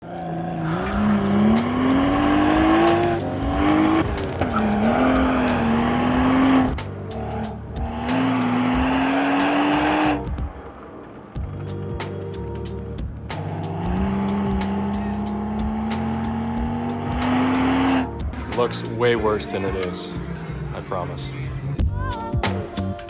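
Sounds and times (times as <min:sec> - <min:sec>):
car engine pulling hard: 0:00.0 - 0:10.4, 0:13.3 - 0:18.4.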